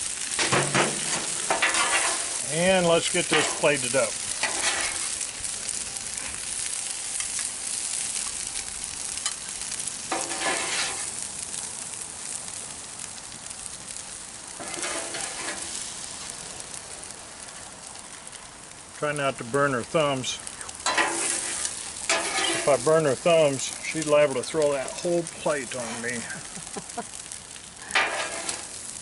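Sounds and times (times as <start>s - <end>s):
food sizzling on griddle: 0.0s - 29.0s
metal spatula scraping griddle: 0.2s - 5.3s, 10.1s - 11.2s, 14.6s - 15.9s, 20.8s - 22.9s, 27.8s - 28.8s.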